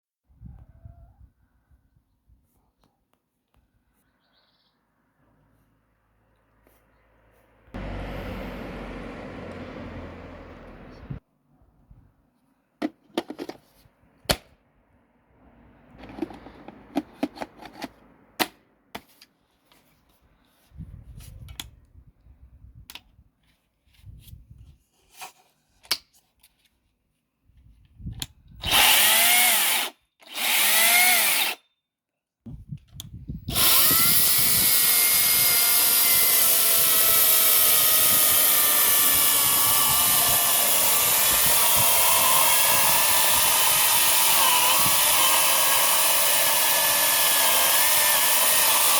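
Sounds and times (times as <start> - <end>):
chainsaw motor whining: 7.8 - 11.2, 28.6 - 31.6, 33.5 - 48.9.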